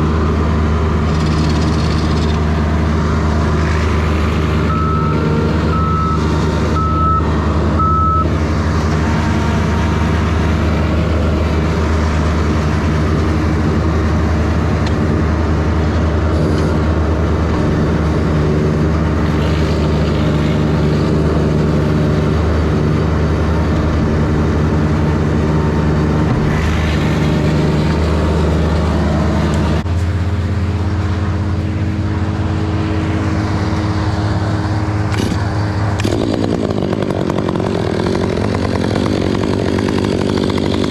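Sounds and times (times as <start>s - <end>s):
heavy machine engine running: 0.0s - 40.9s
reversing alarm beeping: 4.6s - 8.3s.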